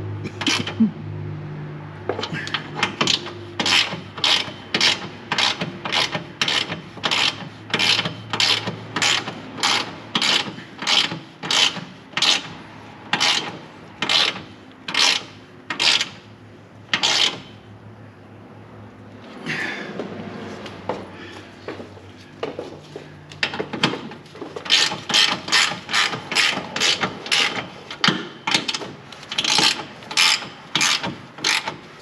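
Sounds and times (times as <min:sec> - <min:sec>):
ratchet clicking: 0:02.4 - 0:12.5, 0:13.1 - 0:16.2, 0:16.9 - 0:17.5, 0:24.6 - 0:31.8.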